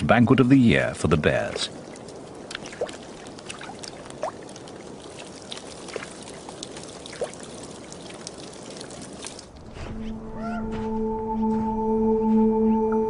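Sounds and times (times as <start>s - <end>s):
water drips and splashes: 1.2s - 9.8s
water trickling and gurgling: 1.2s - 9.8s.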